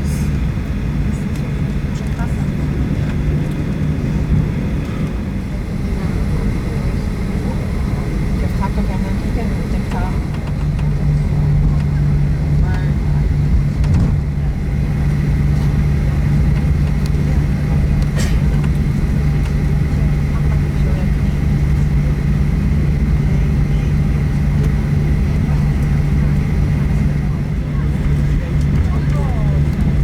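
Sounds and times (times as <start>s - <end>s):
airplane cabin low hum: 0.0s - 30.0s.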